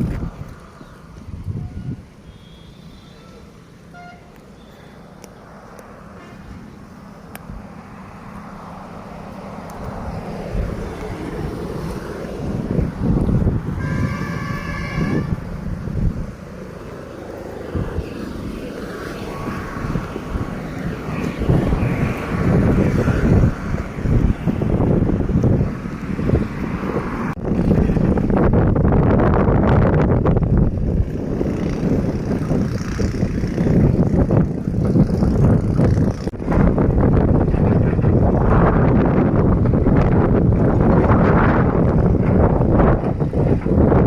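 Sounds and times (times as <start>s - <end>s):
vehicle rumbling: 0.0s - 44.0s
vehicle horn: 1.6s - 5.0s, 13.7s - 15.6s.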